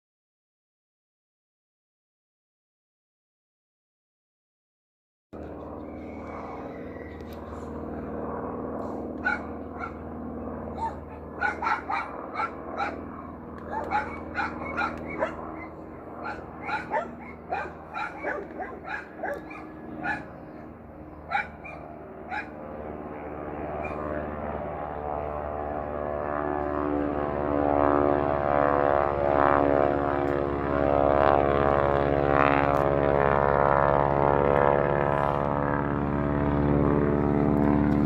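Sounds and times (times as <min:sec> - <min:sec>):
distant aircraft engine drone: 0:05.4 - 0:38.0
dog barking: 0:09.2 - 0:10.0, 0:10.7 - 0:20.4, 0:21.3 - 0:22.6, 0:23.8 - 0:24.1.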